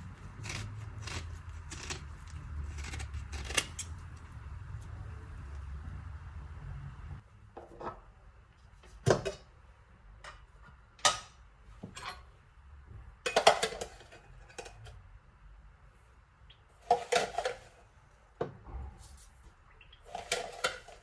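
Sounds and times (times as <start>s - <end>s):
low steady hum: 0.0s - 21.0s
kitchenware clinking: 11.0s - 12.3s, 13.2s - 14.9s, 16.8s - 17.8s, 20.1s - 21.0s.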